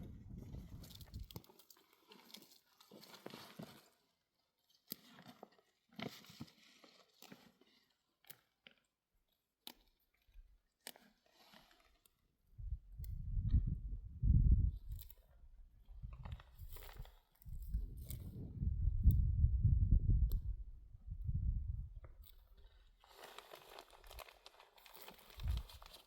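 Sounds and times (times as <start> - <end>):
faint crunches and clicks: 0.5 - 4.1, 4.7 - 12.3, 14.8 - 18.4, 22.0 - 26.0.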